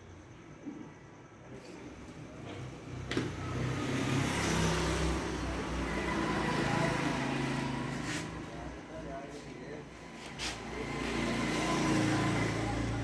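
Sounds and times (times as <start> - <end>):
motor vehicle engine: 2.6 - 8.9, 10.0 - 13.0.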